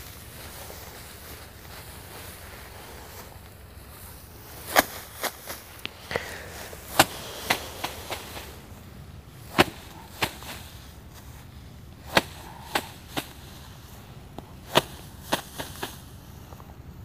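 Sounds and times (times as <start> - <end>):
rice stalks thwacked for threshing: 4.5 - 16.4.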